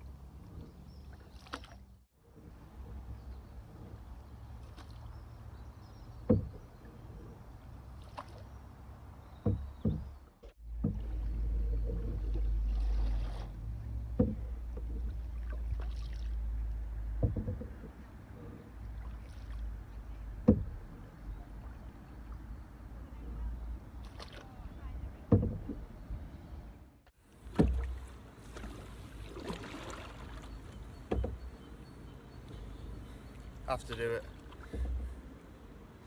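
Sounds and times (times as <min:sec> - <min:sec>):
paddle knocking against hull: 0:06.2 - 0:06.7, 0:09.3 - 0:16.1, 0:17.0 - 0:18.1, 0:20.4 - 0:21.0, 0:25.2 - 0:25.9, 0:27.4 - 0:31.6, 0:33.7 - 0:35.2.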